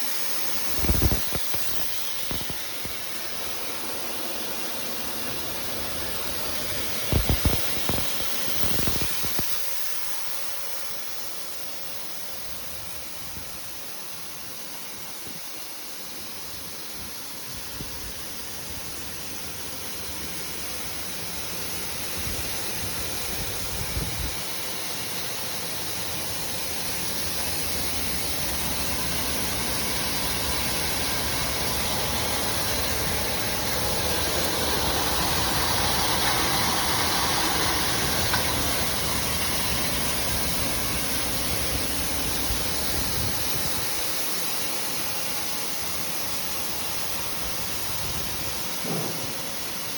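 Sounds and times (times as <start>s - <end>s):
grain washing machinery running: 20.2s - 49.9s.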